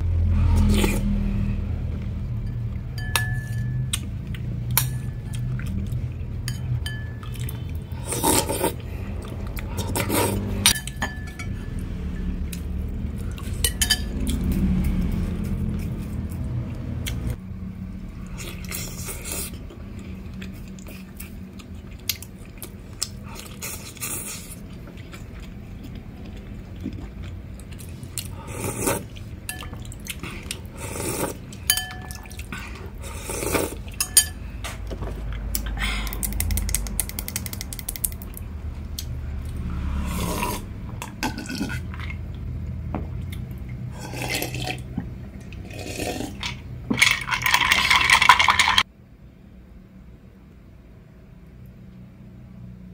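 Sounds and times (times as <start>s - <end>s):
low hum: 0.0s - 52.9s
slurping and eating: 0.4s - 1.5s, 7.2s - 11.4s, 18.2s - 34.3s, 39.4s - 42.5s, 43.2s - 48.8s.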